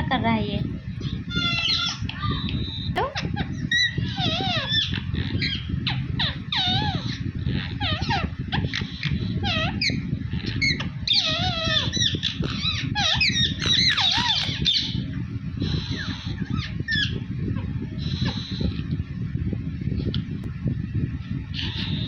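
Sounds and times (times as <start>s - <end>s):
parrot squawking and chattering: 1.0s - 17.2s, 18.0s - 19.0s, 21.6s - 22.0s
parrot screeches: 1.3s - 15.0s.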